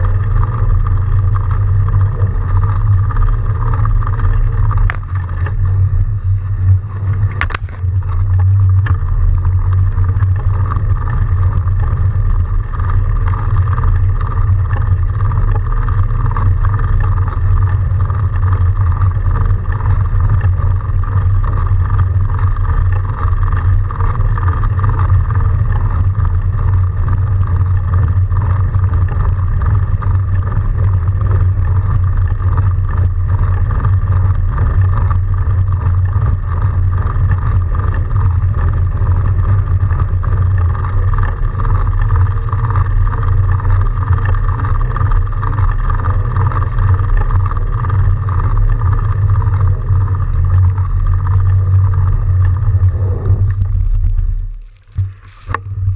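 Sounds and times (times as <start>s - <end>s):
bike tyre and drive noise: 0.0s - 55.9s
wind buffeting microphone: 0.0s - 55.9s.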